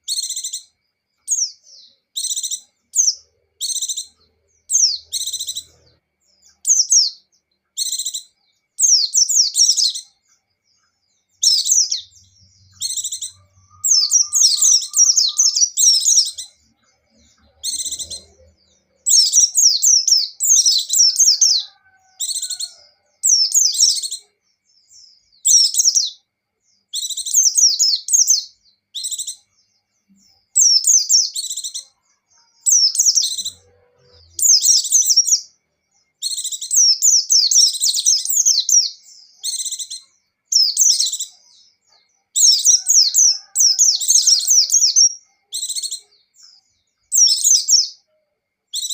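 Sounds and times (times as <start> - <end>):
bird high fast twittering: 11.4 - 16.6.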